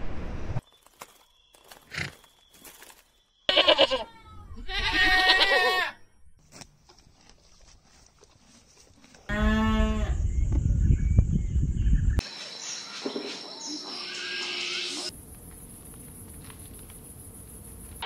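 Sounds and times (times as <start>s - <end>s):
goat bleating: 3.5s - 6.0s.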